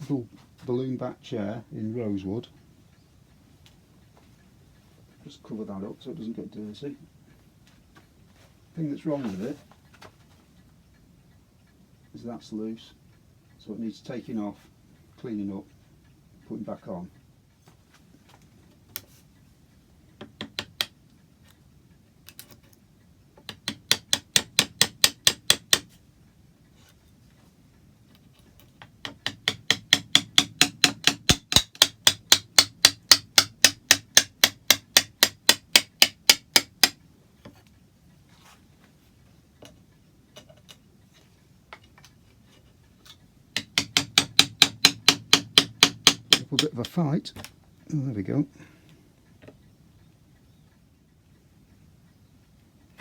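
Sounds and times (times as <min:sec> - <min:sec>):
hammer striking wooden chair: 0:20.2 - 0:21.0, 0:23.4 - 0:26.0, 0:28.8 - 0:37.6, 0:43.6 - 0:47.5.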